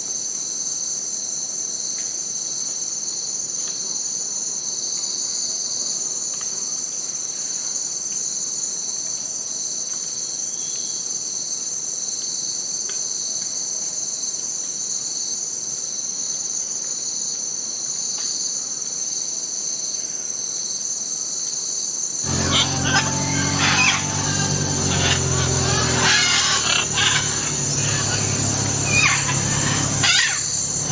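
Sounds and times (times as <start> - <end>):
insects chorus: 22.3 - 30.9.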